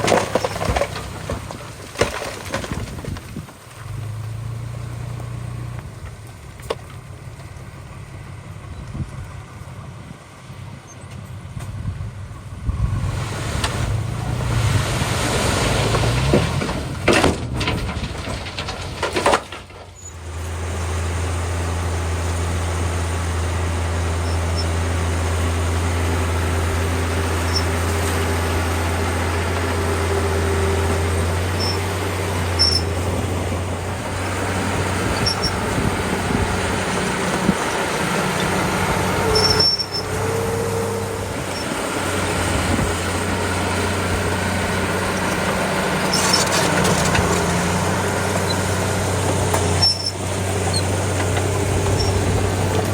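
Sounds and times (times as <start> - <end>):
bulldozer diesel engine: 0.0 - 52.9
faint short squeaks: 19.9 - 20.3, 24.2 - 24.8, 27.4 - 28.0, 31.5 - 33.0, 34.8 - 35.8, 39.2 - 41.8, 46.0 - 47.7, 49.5 - 52.9.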